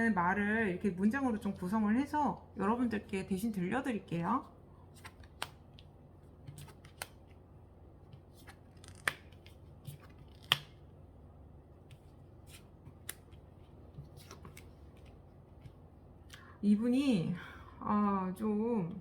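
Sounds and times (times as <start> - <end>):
cards clicking and tapping on table: 8.8 - 9.5, 10.3 - 10.8.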